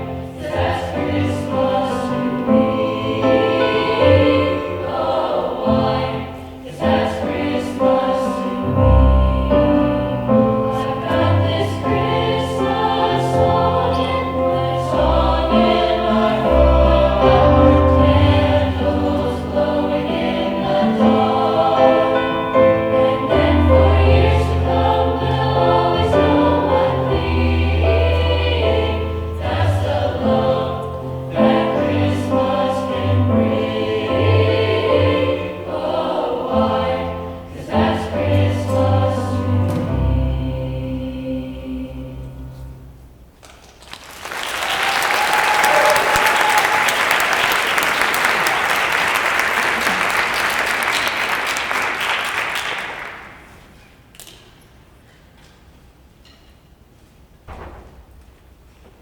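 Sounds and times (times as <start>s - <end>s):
choir singing in harmony: 0.0s - 43.0s.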